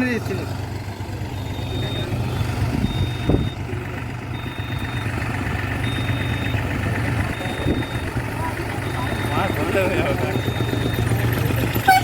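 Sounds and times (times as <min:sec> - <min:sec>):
tractor diesel engine running: 0:00.0 - 0:12.0
high electronic beep: 0:01.3 - 0:03.6, 0:04.4 - 0:05.2, 0:05.8 - 0:06.7, 0:07.3 - 0:11.2.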